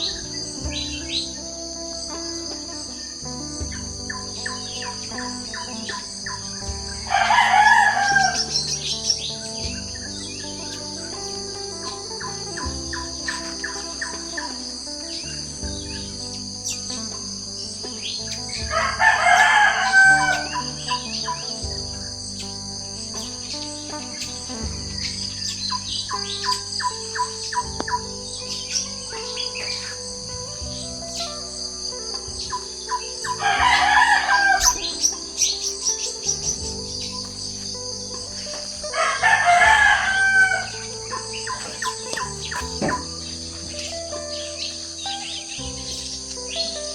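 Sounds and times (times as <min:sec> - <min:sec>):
high insect drone: 0:00.0 - 0:46.9
small birds chirping: 0:00.0 - 0:46.9
rooster crowing: 0:07.1 - 0:08.6, 0:18.7 - 0:20.9, 0:33.4 - 0:34.9, 0:38.9 - 0:41.9.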